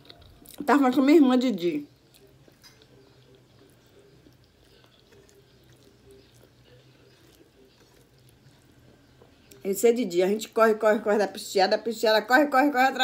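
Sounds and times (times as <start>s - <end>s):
person chewing: 0.0s - 0.7s, 1.9s - 9.7s.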